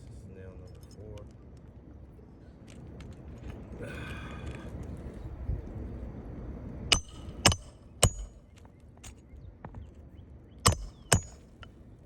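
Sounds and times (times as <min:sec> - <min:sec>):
hammer striking nail: 0:06.9 - 0:08.4, 0:10.7 - 0:11.6.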